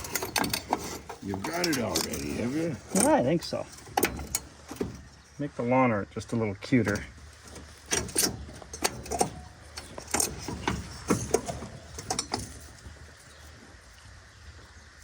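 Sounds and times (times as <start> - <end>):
hand tools clicking and knocking: 0.0 - 5.2, 6.9 - 13.0.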